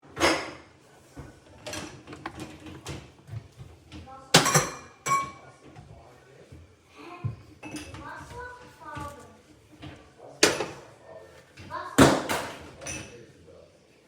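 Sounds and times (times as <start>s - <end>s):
objects clattering: 1.2s - 5.8s
objects clicking and knocking: 1.5s - 3.1s.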